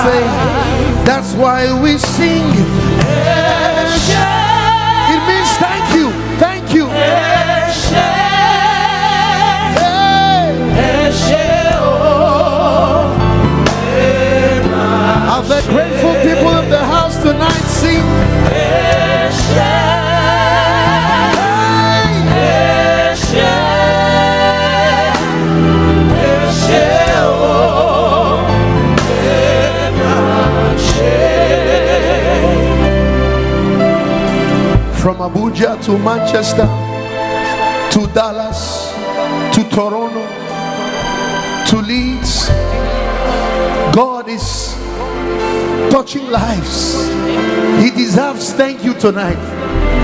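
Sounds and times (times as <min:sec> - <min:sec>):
bass: 0:00.0 - 0:39.9, 0:40.9 - 0:48.4, 0:49.0 - 0:50.0
voices singing gospel song: 0:00.0 - 0:50.0.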